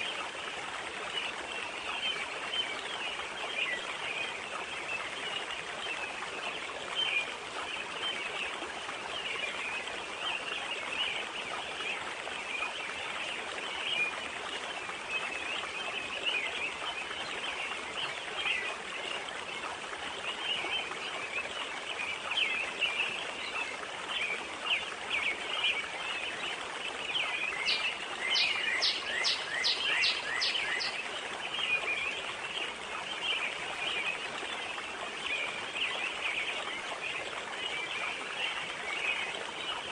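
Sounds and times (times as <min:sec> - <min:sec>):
water rushing: 0:00.0 - 0:39.9
wind: 0:00.0 - 0:39.9
small birds chirping: 0:27.0 - 0:36.7.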